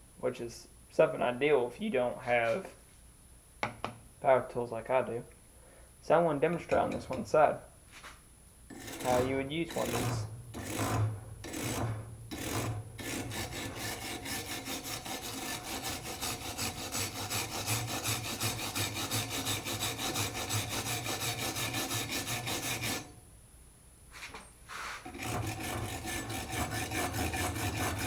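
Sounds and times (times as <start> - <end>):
wire brush scrubbing metal: 8.7 - 23.2, 24.7 - 28.0.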